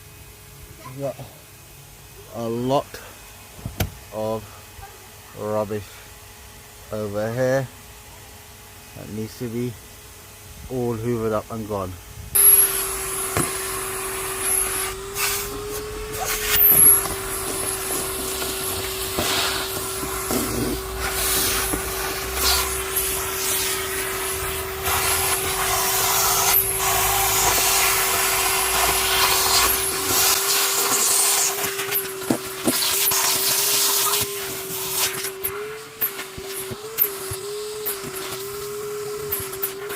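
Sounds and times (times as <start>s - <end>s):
vacuum cleaner motor whine: 0.0s - 39.9s
vacuum suction hiss: 8.7s - 39.9s.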